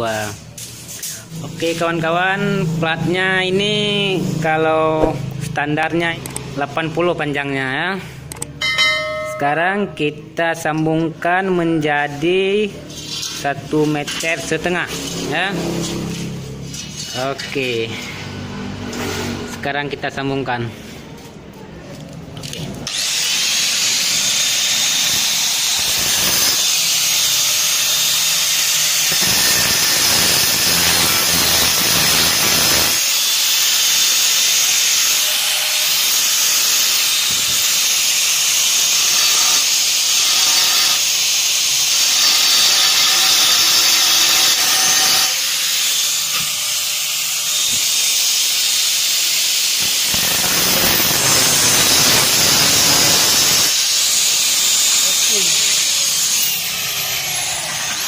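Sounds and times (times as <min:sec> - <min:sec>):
welding hiss: 0:23.0 - 0:56.8.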